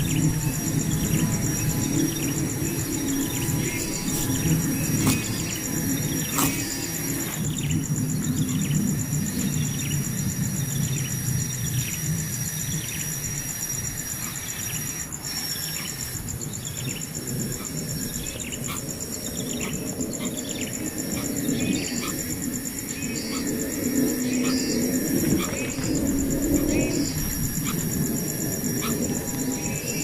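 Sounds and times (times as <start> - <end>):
low rumbling background: 0.0 - 11.9
high insect trill: 0.0 - 30.0.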